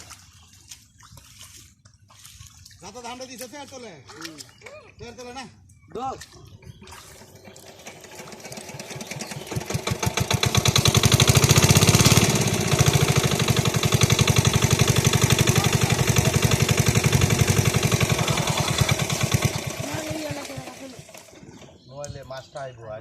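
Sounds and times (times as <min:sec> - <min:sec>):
small engine running: 0:07.0 - 0:21.8.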